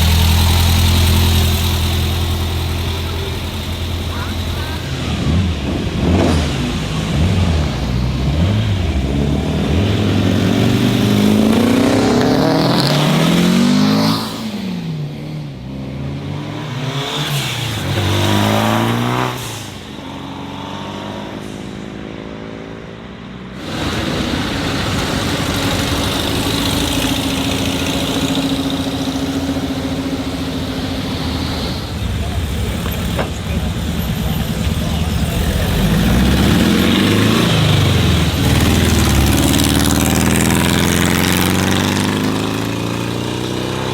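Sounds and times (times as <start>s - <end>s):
steady engine drone: 0.0s - 12.4s, 23.6s - 42.7s
car engines revving: 0.0s - 43.9s.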